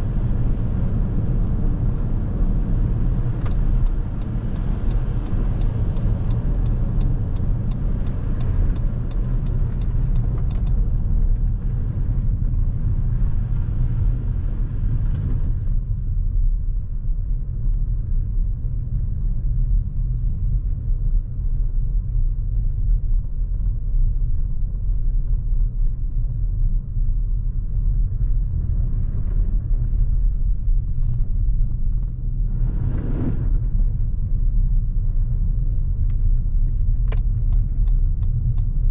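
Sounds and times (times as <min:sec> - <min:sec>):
tyre and road noise rumble: 0:00.0 - 0:38.9
short whoosh: 0:32.4 - 0:33.8.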